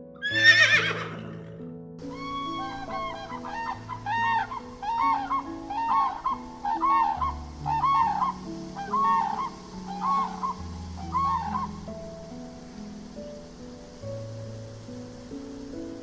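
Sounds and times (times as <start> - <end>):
background music: 0.0 - 16.0
animal call rising and falling: 2.1 - 11.9.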